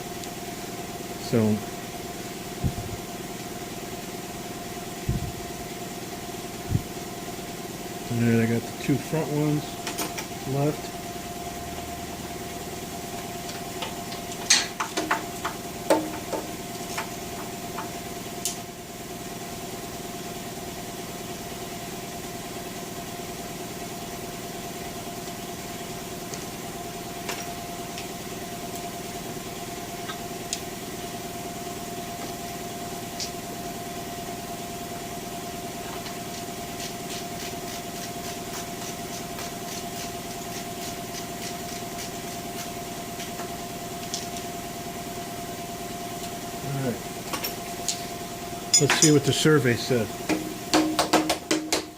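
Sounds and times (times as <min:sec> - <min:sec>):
steady background hum: 0:00.0 - 0:51.9
wrench clinking on metal: 0:48.7 - 0:49.3.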